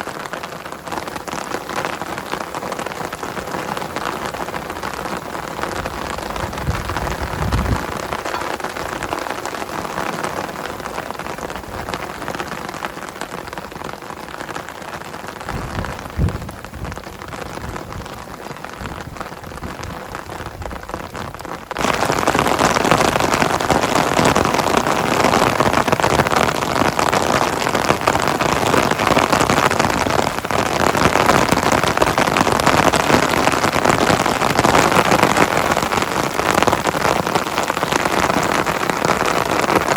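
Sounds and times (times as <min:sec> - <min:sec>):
heavy rain falling: 0:00.0 - 0:39.9
dull thump: 0:15.5 - 0:16.6.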